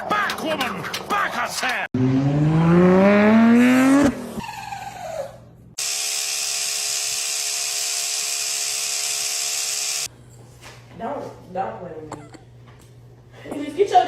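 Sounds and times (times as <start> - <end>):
loud rising pitched sound: 2.0 - 4.4
small motor whirring: 5.8 - 10.1.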